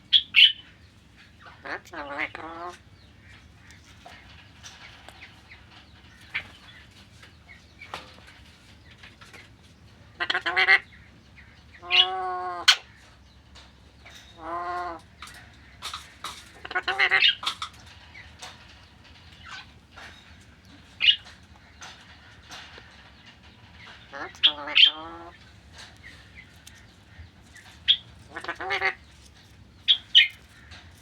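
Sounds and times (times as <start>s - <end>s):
parakeet calling: 1.4s - 4.3s, 11.7s - 13.0s, 14.3s - 17.8s, 21.0s - 21.3s, 23.8s - 25.4s, 26.1s - 29.2s.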